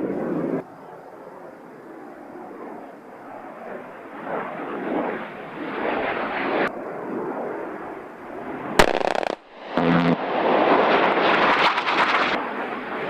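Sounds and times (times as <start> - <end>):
military jet passing: 3.5 - 13.0
sharp bang: 8.8 - 10.2.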